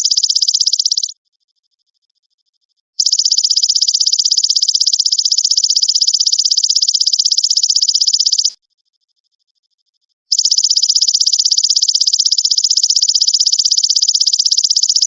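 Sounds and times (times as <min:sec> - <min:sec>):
faint pulsing insect tone: 0:00.0 - 0:01.1, 0:03.0 - 0:09.1, 0:10.3 - 0:15.0.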